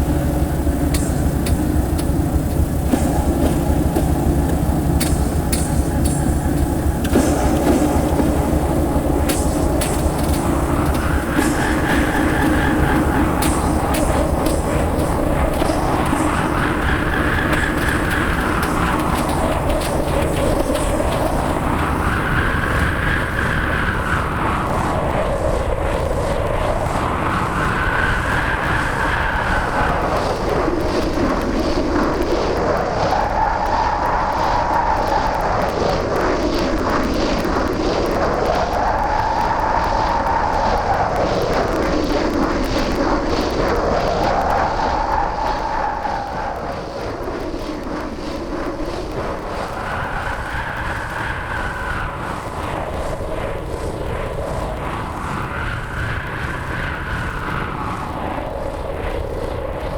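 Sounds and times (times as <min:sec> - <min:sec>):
harsh electronic roar: 0:00.0 - 0:24.5.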